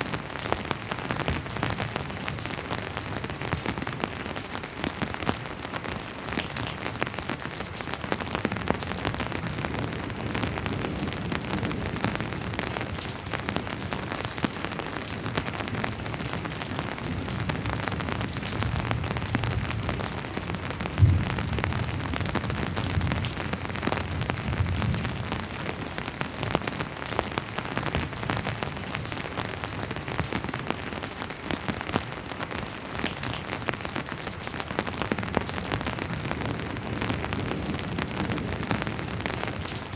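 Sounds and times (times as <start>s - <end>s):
rain with dripping drops: 0.0s - 39.9s
distant thunder rumble: 17.0s - 25.2s.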